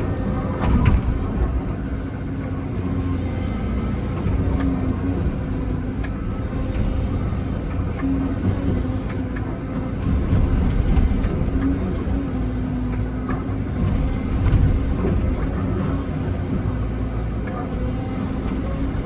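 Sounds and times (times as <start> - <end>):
diesel engine droning: 0.0 - 19.0.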